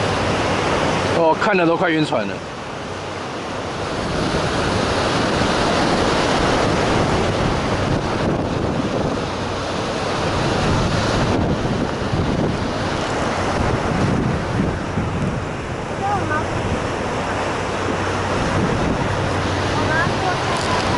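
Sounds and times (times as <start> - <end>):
heavy surf: 0.0 - 20.9
wind buffeting microphone: 2.6 - 20.9.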